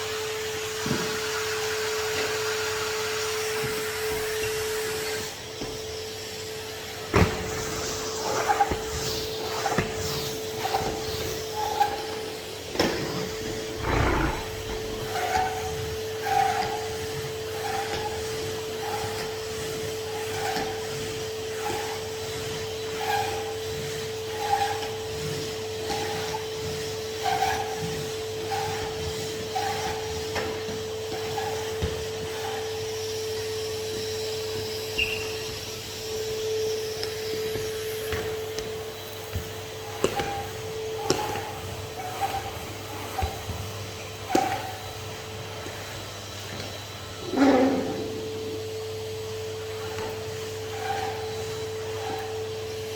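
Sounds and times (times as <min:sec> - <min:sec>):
vacuum cleaner motor hum: 0:00.0 - 0:17.7, 0:31.6 - 0:52.9
vacuum tool rubbing on surface: 0:00.1 - 0:52.9.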